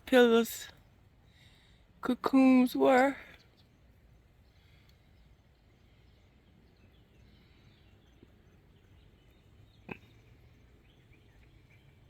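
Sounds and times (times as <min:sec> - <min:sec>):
faint bird chirps: 0:02.9 - 0:12.0.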